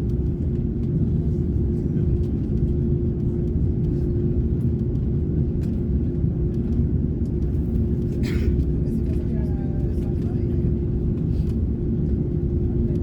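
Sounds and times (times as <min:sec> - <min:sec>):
aircraft cabin rumble: 0:00.0 - 0:13.0
constant hum: 0:00.0 - 0:13.0.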